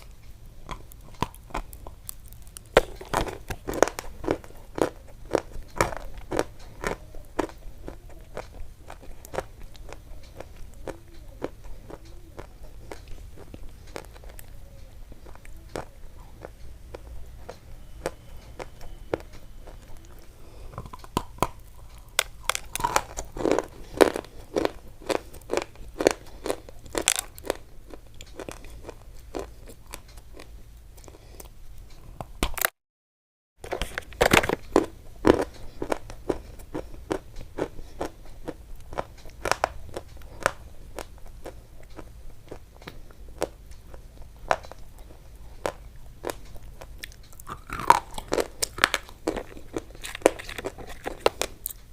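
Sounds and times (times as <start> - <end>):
crunchy chewing: 0.0 - 32.7, 33.6 - 51.9.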